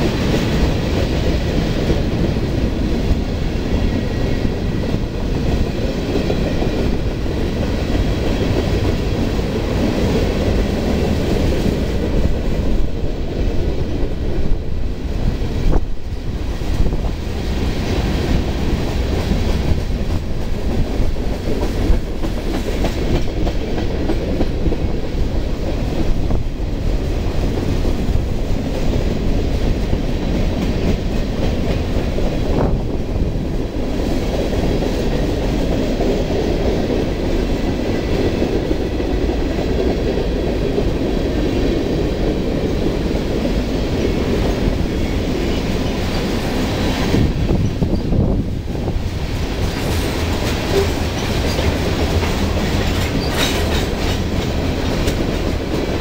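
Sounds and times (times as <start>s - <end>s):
freight train rumbling past: 0.0s - 56.0s
wheels clacking over rail joints: 41.7s - 56.0s.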